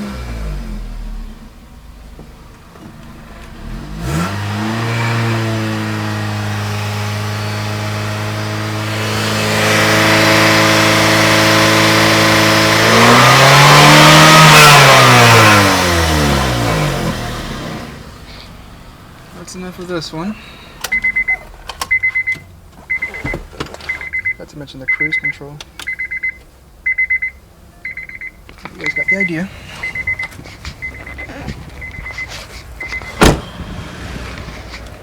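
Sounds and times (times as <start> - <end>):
car engine revving: 0.0 - 19.4, 28.6 - 35.0.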